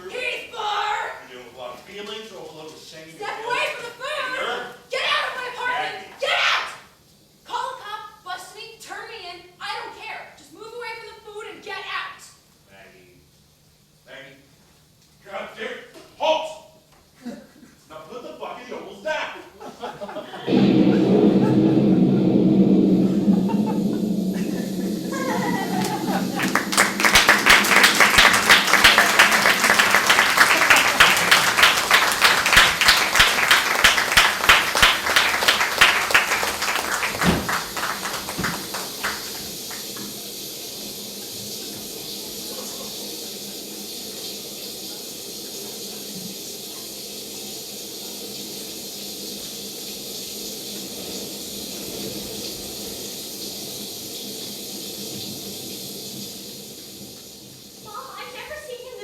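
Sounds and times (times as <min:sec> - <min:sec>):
room and recording hiss: 0:00.0 - 0:59.0
audience applauding: 0:25.8 - 0:40.1.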